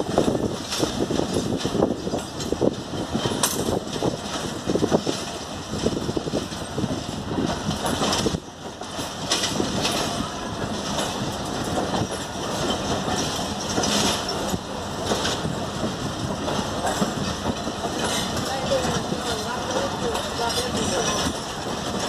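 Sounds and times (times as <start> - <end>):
train coaches rolling past: 0.0 - 22.0
wheels clacking over rail joints: 0.0 - 22.0.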